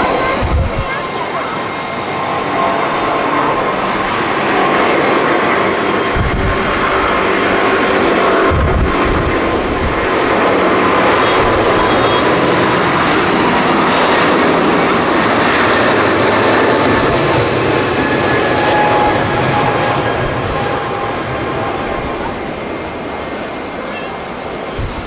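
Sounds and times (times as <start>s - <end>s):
jet airliner engines roaring: 0.0s - 25.0s.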